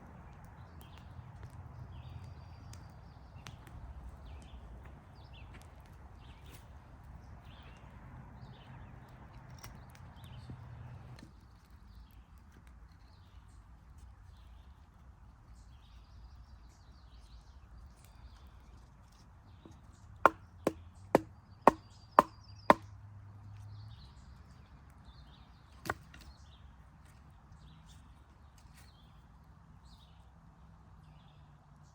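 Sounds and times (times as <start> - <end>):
wood being chopped: 19.6 - 23.0, 25.8 - 26.3.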